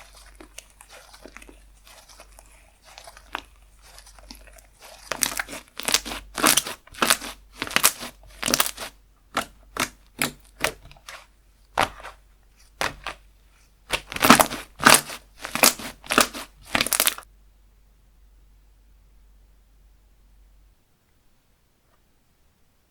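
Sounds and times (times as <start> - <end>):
slime squishing by hand: 0.0 - 17.3.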